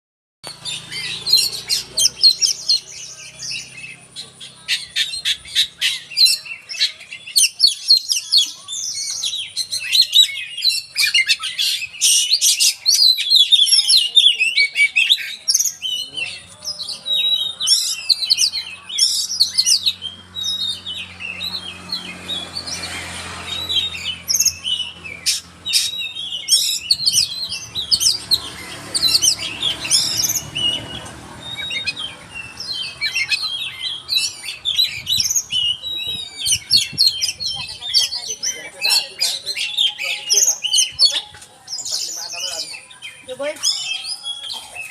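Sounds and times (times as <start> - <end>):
bird singing whistled song: 23.6 - 44.9.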